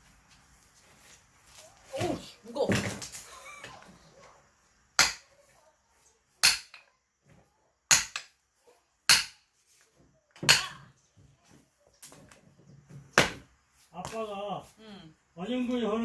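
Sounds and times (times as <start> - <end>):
splitting tool striking log: 5.0 - 5.3, 6.4 - 6.8, 7.9 - 8.3, 9.1 - 9.4, 10.4 - 10.8, 13.2 - 13.5.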